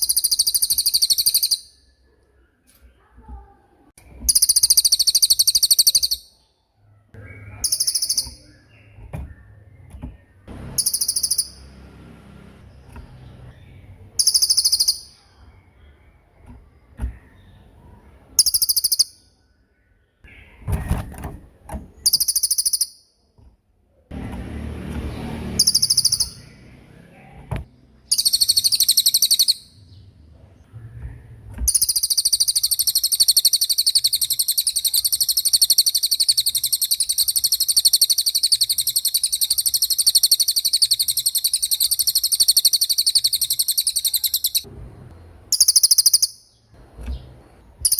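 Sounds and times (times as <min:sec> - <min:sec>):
songbird trilling: 0:00.0 - 0:01.9, 0:04.3 - 0:06.5, 0:07.2 - 0:11.8, 0:13.1 - 0:16.0, 0:18.4 - 0:19.3, 0:22.0 - 0:23.1, 0:25.0 - 0:26.9, 0:28.0 - 0:30.0, 0:31.7 - 0:44.7, 0:45.5 - 0:47.9.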